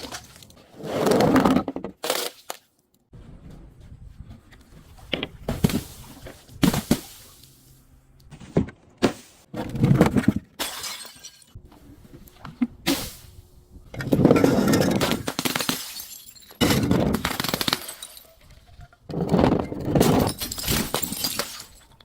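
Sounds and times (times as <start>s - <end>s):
glass breaking and crunching: 10.6s - 11.6s, 14.3s - 18.5s, 19.7s - 22.0s.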